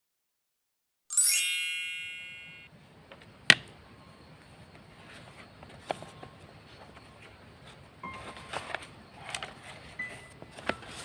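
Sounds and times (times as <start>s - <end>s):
bright bell-like chime: 1.1s - 2.7s.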